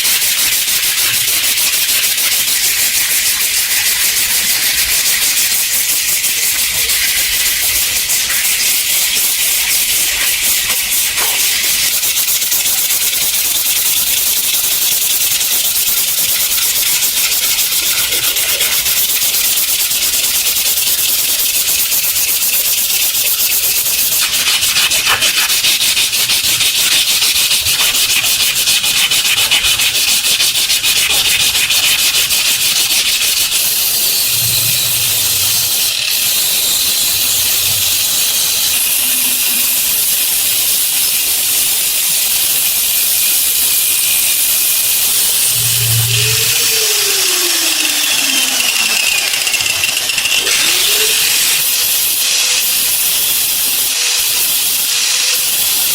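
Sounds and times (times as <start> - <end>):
abrasive sanding on steel: 0.0 - 55.9
fast run of ticks: 0.0 - 55.9.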